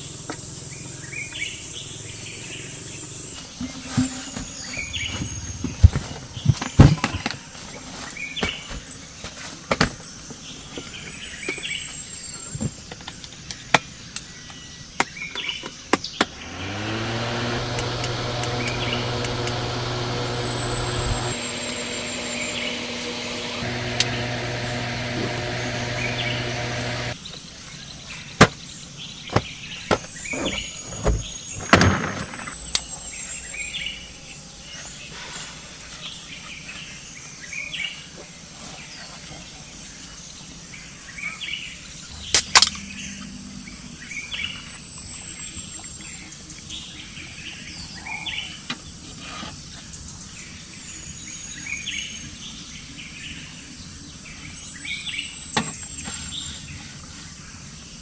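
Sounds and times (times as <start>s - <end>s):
birds chirping: 0.0s - 8.8s, 14.3s - 42.4s
low mechanical hum: 16.3s - 27.2s.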